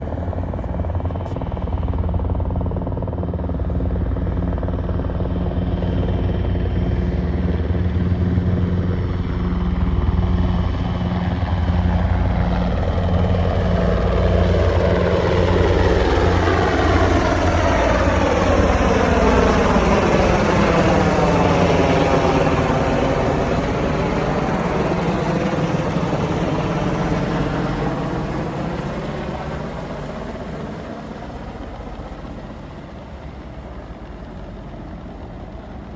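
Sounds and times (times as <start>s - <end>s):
helicopter turbine whine: 0.0s - 35.9s.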